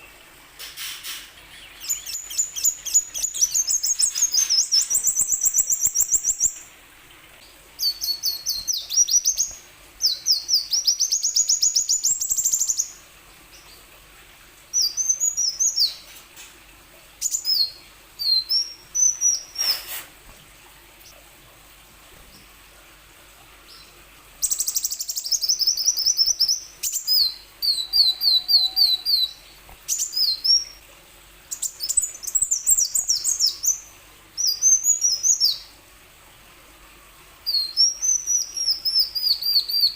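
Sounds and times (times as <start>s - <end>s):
bird chirping and trilling: 0.8s - 6.7s, 7.8s - 13.8s, 14.7s - 16.0s, 17.2s - 19.9s, 23.7s - 30.8s, 31.5s - 35.7s, 37.4s - 39.9s.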